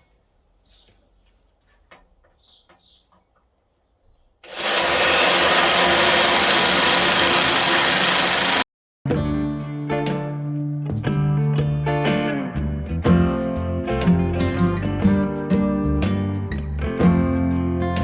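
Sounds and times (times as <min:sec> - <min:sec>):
power tool cutting sheet metal: 0:04.4 - 0:08.6.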